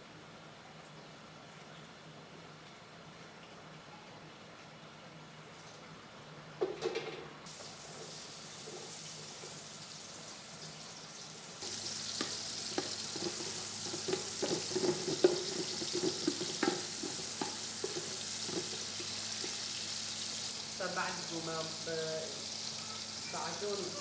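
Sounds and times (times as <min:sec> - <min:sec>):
food frying in oil: 0:07.4 - 0:24.0.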